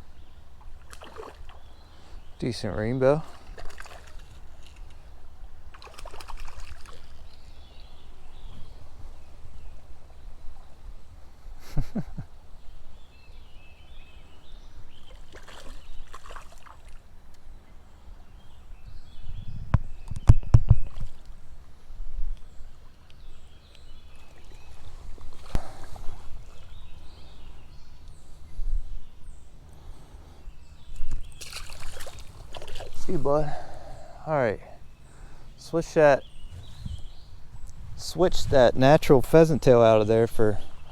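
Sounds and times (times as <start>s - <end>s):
creek flowing: 0.6s - 8.3s, 15.0s - 17.2s, 23.8s - 27.7s, 31.0s - 36.2s
water splashing: 0.8s - 1.7s, 3.1s - 5.1s, 5.7s - 7.3s, 15.1s - 17.0s, 31.0s - 33.9s.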